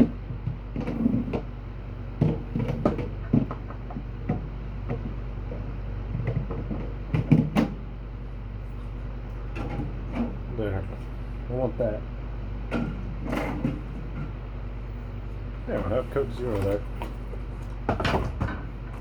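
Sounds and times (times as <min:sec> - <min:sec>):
objects knocking and clunking: 0:00.0 - 0:01.5, 0:02.2 - 0:07.8, 0:17.9 - 0:19.0.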